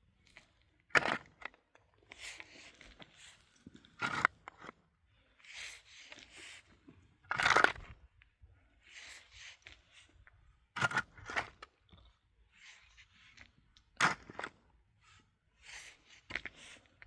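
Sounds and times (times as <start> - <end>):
crunching and scraping: 6.0 - 8.0.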